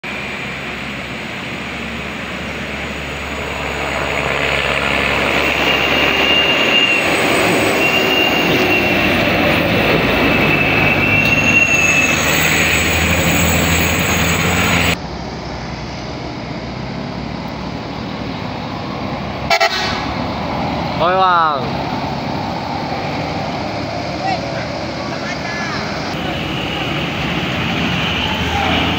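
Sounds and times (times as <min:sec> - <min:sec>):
heavy vehicle engine running: 0:00.0 - 0:28.9
high-pitched squeal: 0:00.1 - 0:16.2, 0:19.5 - 0:28.9.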